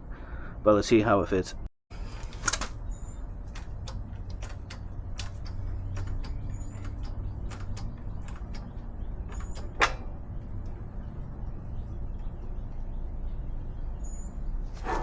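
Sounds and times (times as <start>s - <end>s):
steady low hum: 0.0s - 15.0s
metal parts and tools clicking: 2.0s - 10.2s.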